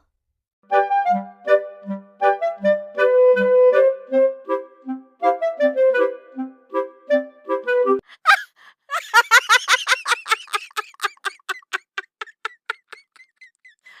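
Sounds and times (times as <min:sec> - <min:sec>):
woodwind tune: 0:00.7 - 0:08.0
person laughing hard: 0:08.1 - 0:14.0.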